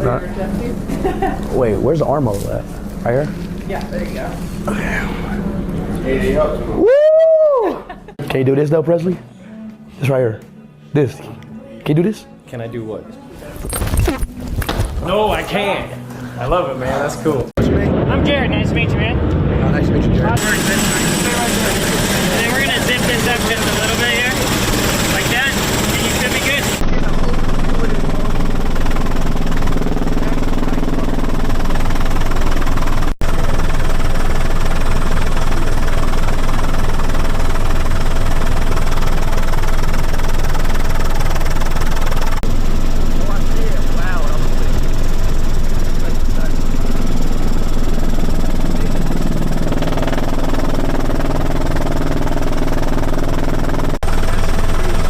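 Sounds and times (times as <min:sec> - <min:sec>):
helicopter engine and rotor: 0:18.0 - 0:55.0.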